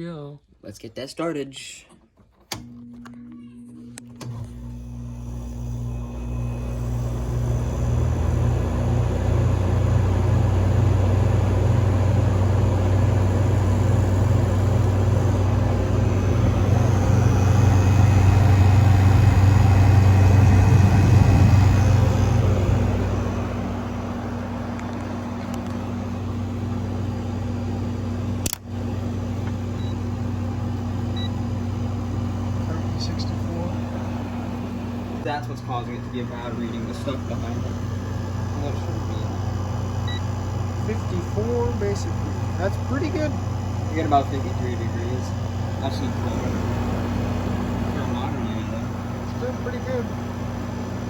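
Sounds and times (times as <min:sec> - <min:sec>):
air conditioner humming: 0:00.0 - 0:51.0.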